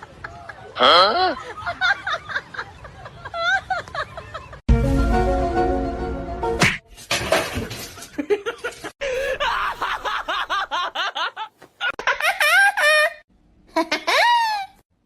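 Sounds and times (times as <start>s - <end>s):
high-pitched giggling: 11.9s - 14.8s.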